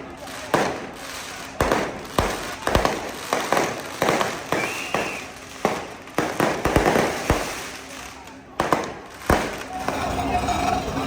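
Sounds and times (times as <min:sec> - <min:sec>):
firecrackers banging: 0:00.0 - 0:11.0
short whistling tone: 0:04.6 - 0:05.3.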